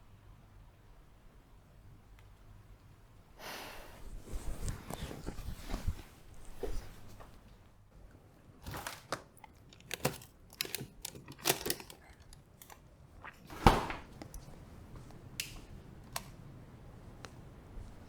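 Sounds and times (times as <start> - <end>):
short rustles: 4.0 - 7.5.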